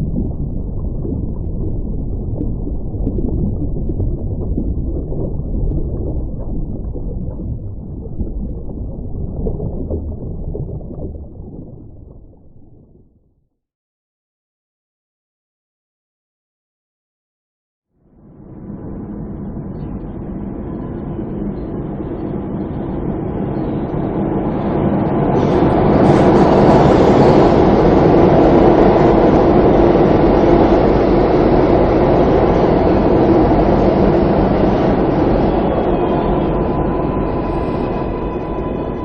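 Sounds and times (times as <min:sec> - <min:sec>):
faint steady whine: 0:18.1 - 0:39.0
subway train rumbling and rattling: 0:19.5 - 0:39.0.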